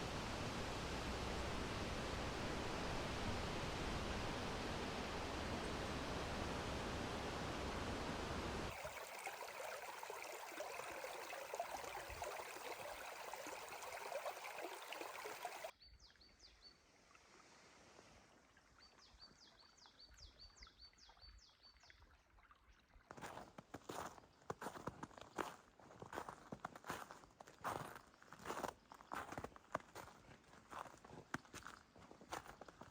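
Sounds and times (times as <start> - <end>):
stream flowing over rocks: 0.0 - 15.7.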